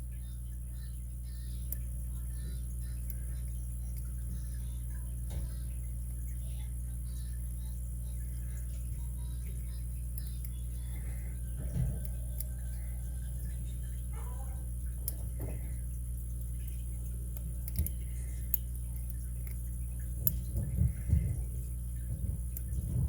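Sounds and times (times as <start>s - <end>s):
low electrical hum: 0.0s - 23.0s
lock pick ticking and scraping: 11.5s - 12.7s, 16.5s - 21.7s.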